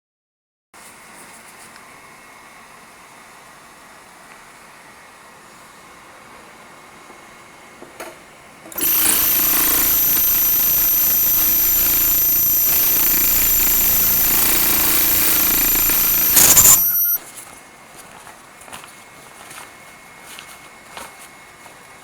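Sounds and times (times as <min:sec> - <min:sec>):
sewing machine whining: 0:08.7 - 0:17.2
small clicks: 0:08.8 - 0:17.2.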